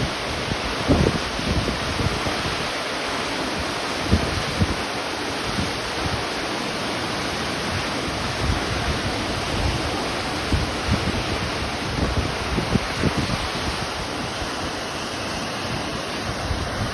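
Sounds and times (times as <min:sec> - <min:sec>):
waterfall rushing: 0:00.0 - 0:16.9
wind on microphone: 0:00.0 - 0:16.9.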